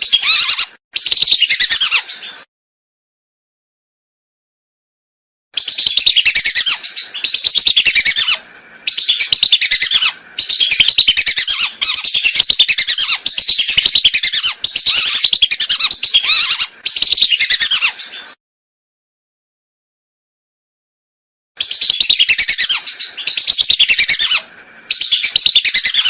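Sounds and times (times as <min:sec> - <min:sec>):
whistling duck calls: 0:05.6 - 0:18.0, 0:21.6 - 0:26.0.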